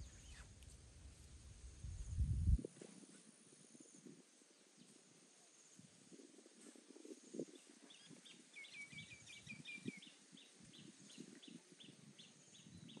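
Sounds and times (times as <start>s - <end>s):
faint bird chirping: 0.0s - 0.7s, 7.0s - 13.0s.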